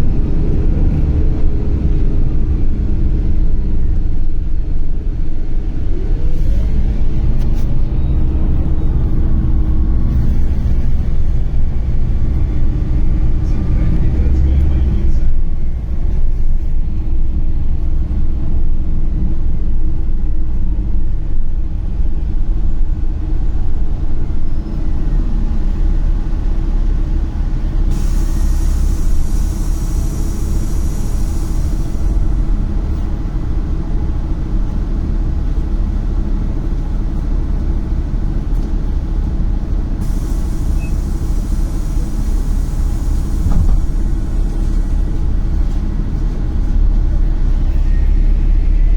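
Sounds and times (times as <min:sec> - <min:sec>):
bus engine and road rumble: 0:00.0 - 0:48.9
hiss: 0:27.9 - 0:32.2, 0:40.0 - 0:45.0.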